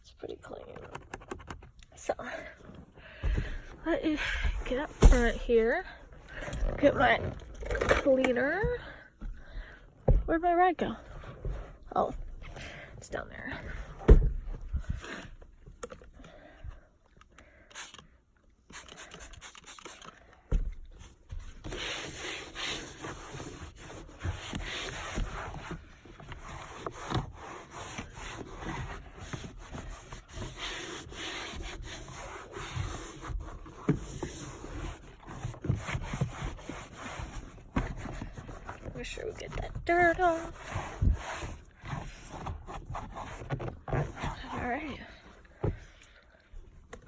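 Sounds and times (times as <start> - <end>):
knocks and handling sounds: 0.5 - 18.0, 18.8 - 47.0
rag scrubbing surfaces: 26.4 - 45.1.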